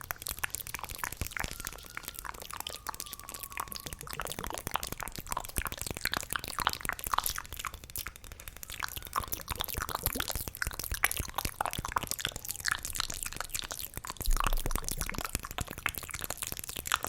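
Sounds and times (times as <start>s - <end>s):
wet mouth clicks and smacks: 0.0s - 17.0s.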